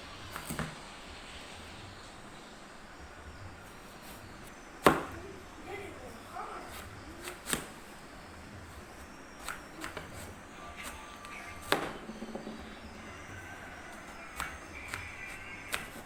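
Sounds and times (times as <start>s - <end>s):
sharp knocks: 11.5s - 15.0s.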